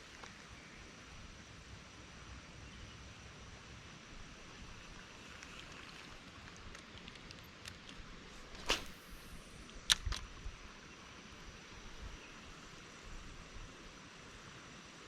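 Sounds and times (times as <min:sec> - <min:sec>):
faint steady hiss: 0:00.0 - 0:15.0
fishing rod swishing: 0:08.4 - 0:09.3
sharp clicks: 0:09.6 - 0:10.3.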